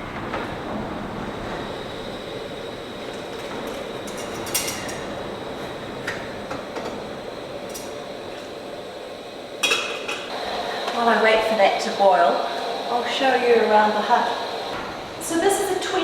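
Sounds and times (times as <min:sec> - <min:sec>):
steady roaring rush: 0:00.0 - 0:16.0.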